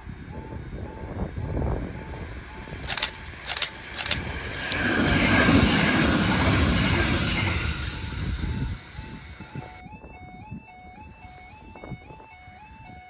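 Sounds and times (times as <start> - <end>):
train wheels rumbling on rails: 0.2 - 9.8
level crossing warning alarm: 0.3 - 5.6, 6.7 - 13.0.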